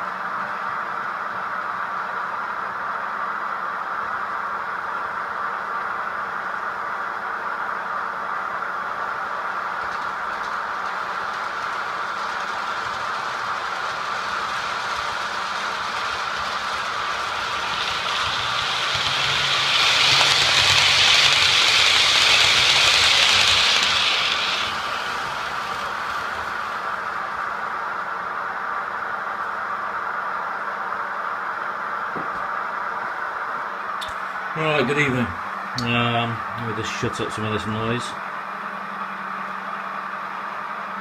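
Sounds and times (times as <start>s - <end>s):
steady motor hum: 7.8s - 29.4s
model train wheels rattling: 8.9s - 27.7s.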